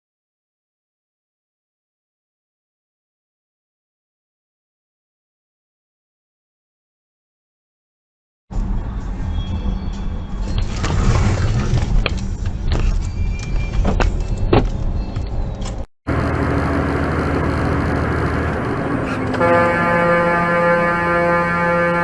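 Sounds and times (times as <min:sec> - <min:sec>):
car road rumble: 0:08.5 - 0:22.0
traffic noise: 0:08.5 - 0:22.0
car horn: 0:18.0 - 0:22.0.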